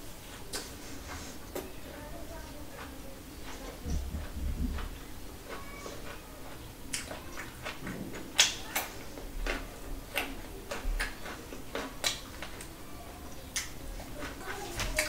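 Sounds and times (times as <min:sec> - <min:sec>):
wet mouth clicks: 0:06.9 - 0:12.7, 0:13.5 - 0:13.8.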